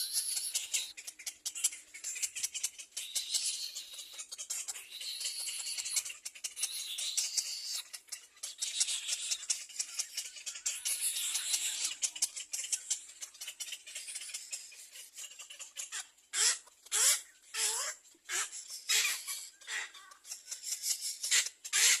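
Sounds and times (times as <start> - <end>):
nestlings chittering: 0.0 - 22.0
harsh squawks: 15.1 - 20.2, 21.2 - 22.0.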